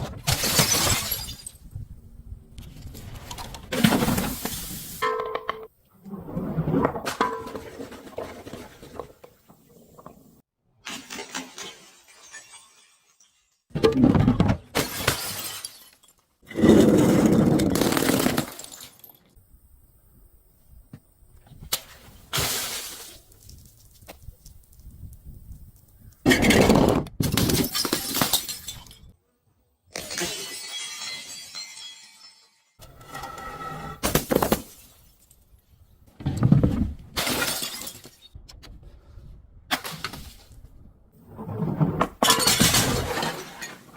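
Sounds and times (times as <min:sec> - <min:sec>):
glass bottles shattering: 0:00.3 - 0:01.7, 0:10.9 - 0:13.7, 0:14.8 - 0:16.3, 0:17.4 - 0:19.4, 0:27.2 - 0:29.1, 0:29.9 - 0:32.8, 0:37.2 - 0:38.4, 0:42.2 - 0:43.9
glass bottle cracking: 0:11.0 - 0:13.6, 0:30.0 - 0:32.8.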